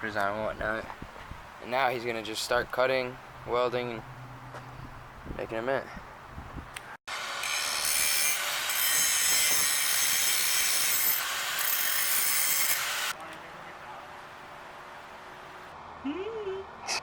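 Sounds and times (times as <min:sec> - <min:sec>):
power tool screeching through metal: 0:07.1 - 0:13.1.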